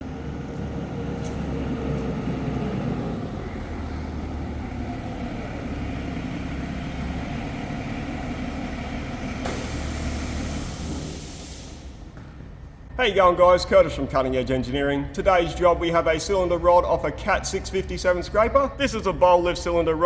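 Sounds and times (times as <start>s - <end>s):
vehicle engine rumbling: 0.0s - 13.8s.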